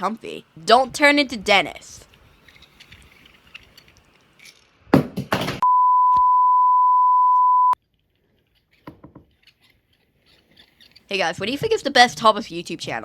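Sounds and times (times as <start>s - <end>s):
electronic bleep: 5.6s - 7.8s.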